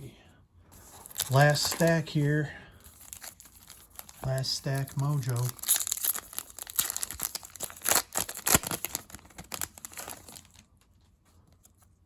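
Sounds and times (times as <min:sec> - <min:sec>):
foil wrapper crinkling and tearing: 0:00.8 - 0:02.2, 0:02.8 - 0:10.8.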